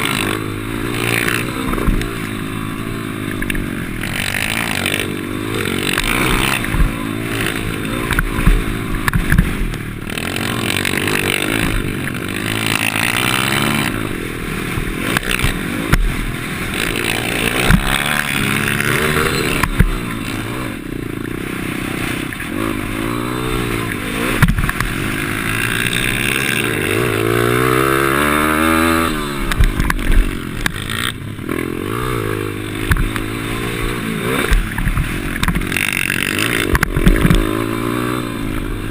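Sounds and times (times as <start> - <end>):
motorbike engine revving: 0.0 - 38.9
sharp knocks and rattles: 3.2 - 14.0, 24.3 - 27.3, 32.8 - 37.8.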